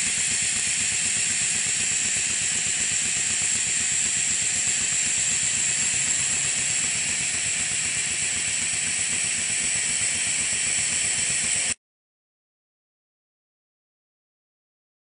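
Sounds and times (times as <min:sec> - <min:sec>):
model steam engine running: 0:00.0 - 0:11.8.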